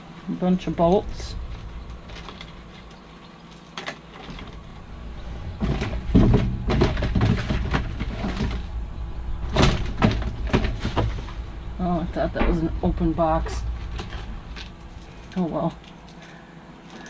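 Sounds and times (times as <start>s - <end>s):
low rumble: 0.0s - 3.0s, 4.4s - 16.1s
thumps knocks and rustling: 5.4s - 8.8s, 9.4s - 11.6s, 12.2s - 15.0s.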